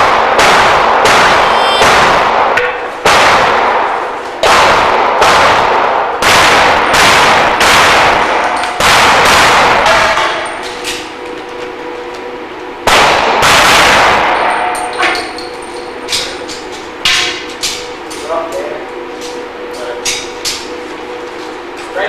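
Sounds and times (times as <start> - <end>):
echoing pistol shots: 0.0 - 10.2, 12.9 - 14.4.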